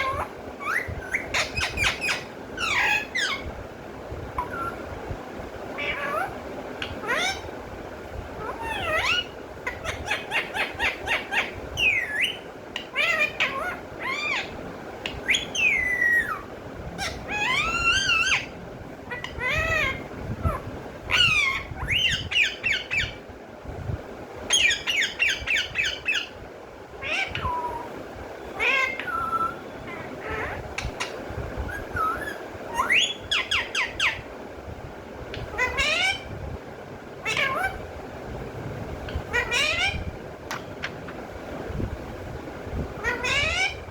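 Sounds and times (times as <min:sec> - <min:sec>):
parrot chirps and squawks: 0:00.0 - 0:03.5, 0:04.4 - 0:04.9, 0:05.7 - 0:07.5, 0:08.4 - 0:23.2, 0:24.5 - 0:26.4, 0:27.0 - 0:27.9, 0:28.6 - 0:34.3, 0:35.3 - 0:36.3, 0:37.2 - 0:37.9, 0:39.1 - 0:41.2, 0:43.0 - 0:43.9.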